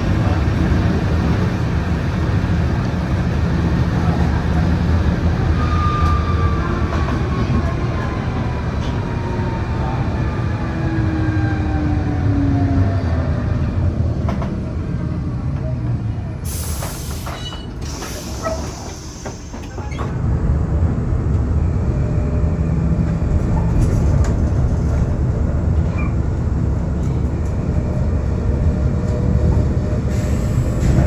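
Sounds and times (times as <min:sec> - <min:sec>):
tram rumbling on rails: 0:00.0 - 0:31.0.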